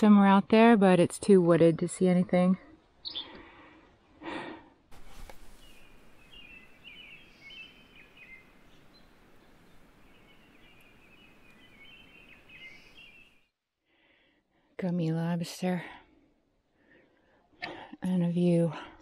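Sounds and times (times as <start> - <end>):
songbird chirping: 1.4 - 3.8, 5.0 - 13.6
forest air hiss: 3.1 - 13.4.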